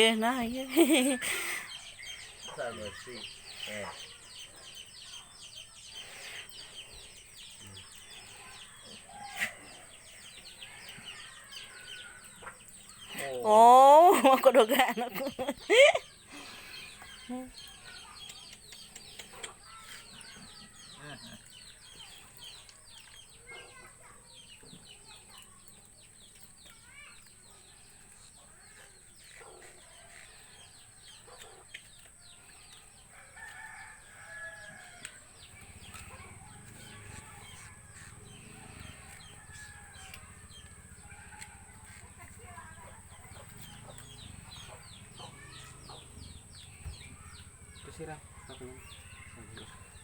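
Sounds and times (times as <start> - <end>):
drawn-out bird calls: 0.0 - 24.1, 26.8 - 50.0
birds chirping: 0.0 - 50.0
chickens clucking: 0.8 - 20.8, 29.2 - 50.0.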